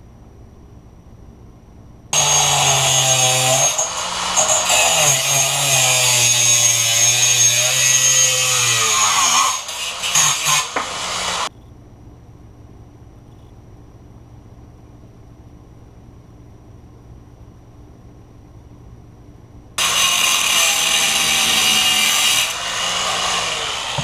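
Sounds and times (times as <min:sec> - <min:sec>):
power tool grinding steel: 0:02.2 - 0:11.5, 0:19.8 - 0:24.0.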